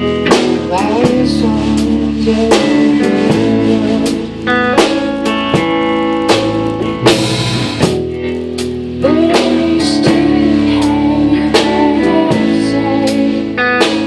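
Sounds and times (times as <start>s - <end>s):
drum kit strikes: 0.0s - 14.0s
ringing guitar: 0.0s - 14.0s
small band playing live: 0.0s - 14.0s.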